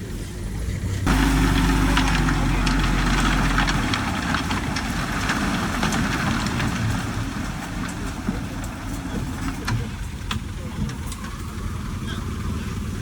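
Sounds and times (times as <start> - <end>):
diesel machinery engine: 0.0 - 13.0
clinks and knocks: 1.1 - 11.3.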